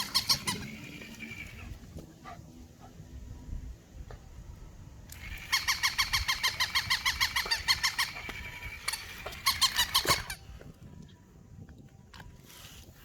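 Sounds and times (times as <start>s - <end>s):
toy dog squeaking: 0.0s - 1.6s, 5.2s - 10.4s.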